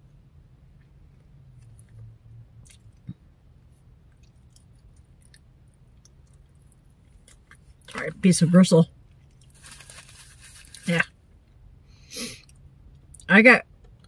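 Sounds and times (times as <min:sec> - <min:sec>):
person chewing with wet mouth clicks: 0:02.6 - 0:03.2.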